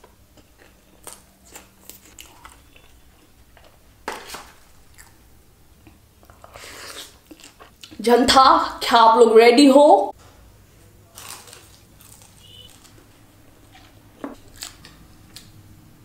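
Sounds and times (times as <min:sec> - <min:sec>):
chewing and biting food: 0:00.0 - 0:03.7, 0:05.8 - 0:08.0, 0:11.1 - 0:13.0, 0:13.8 - 0:15.6.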